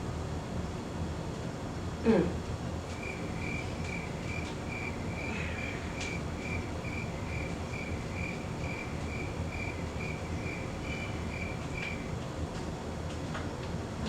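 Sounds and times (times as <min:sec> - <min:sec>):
low background noise: 0:02.8 - 0:12.2
cricket chirping: 0:02.9 - 0:12.2.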